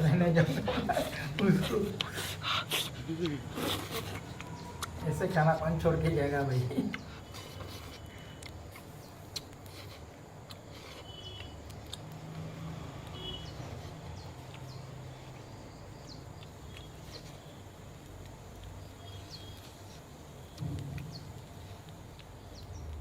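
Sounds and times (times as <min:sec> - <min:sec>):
bird chirps: 0:11.0 - 0:11.6, 0:18.8 - 0:21.8.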